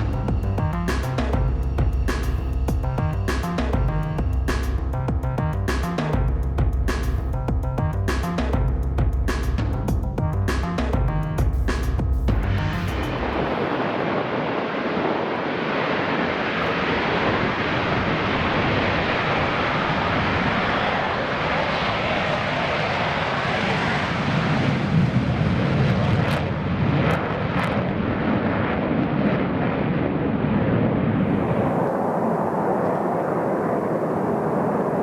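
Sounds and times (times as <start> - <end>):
jet engine roar: 12.5 - 35.0.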